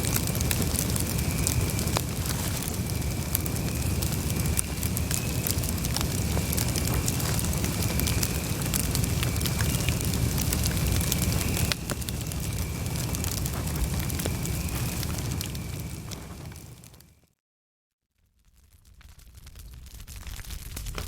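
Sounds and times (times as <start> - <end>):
campfire crackling and popping: 0.0 - 17.2, 18.4 - 21.0
low fire rumble: 0.0 - 17.2, 18.3 - 21.0.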